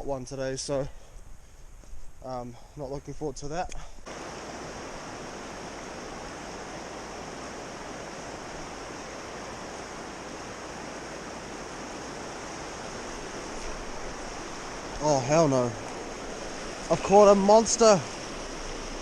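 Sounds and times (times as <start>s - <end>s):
river water flowing over rocks: 4.1s - 19.0s.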